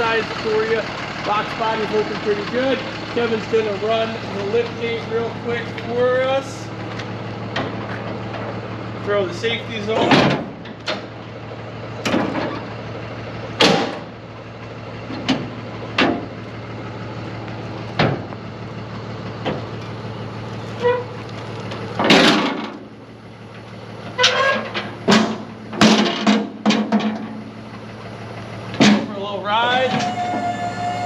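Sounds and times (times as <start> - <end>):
metal clanks and knocks: 6.9 - 8.6, 9.9 - 11.2, 12.0 - 12.7, 13.6 - 14.1, 15.1 - 16.4, 21.9 - 22.9, 24.0 - 27.5, 28.7 - 30.6.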